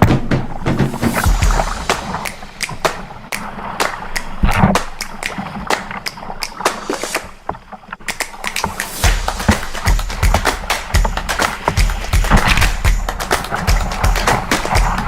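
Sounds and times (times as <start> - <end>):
water splashing around hull: 0.0 - 15.0
paddle knocking: 8.0 - 15.0.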